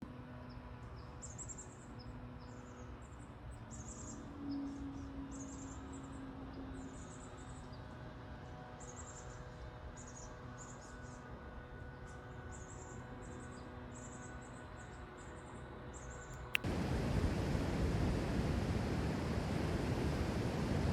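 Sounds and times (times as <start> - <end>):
faint low rumble: 16.6 - 20.9.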